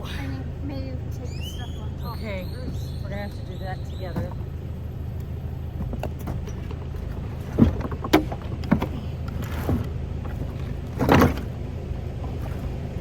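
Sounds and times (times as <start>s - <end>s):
heavy items knocking and thudding: 5.7s - 11.6s.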